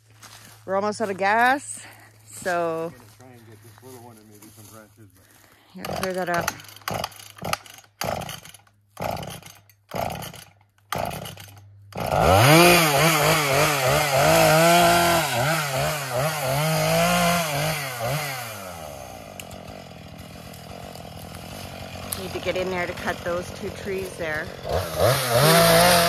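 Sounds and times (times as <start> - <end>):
chainsaw engine: 0.1 - 26.0
chainsaw cutting wood: 1.2 - 3.0, 5.8 - 26.0.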